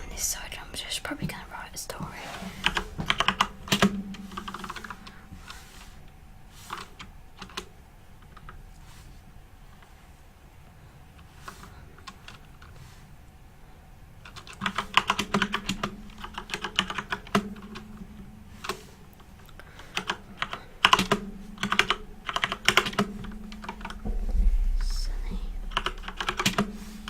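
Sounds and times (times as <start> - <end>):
computer keyboard typing: 2.6 - 5.6, 6.7 - 8.6, 11.6 - 12.7, 14.2 - 18.0, 19.8 - 24.0, 25.7 - 26.7.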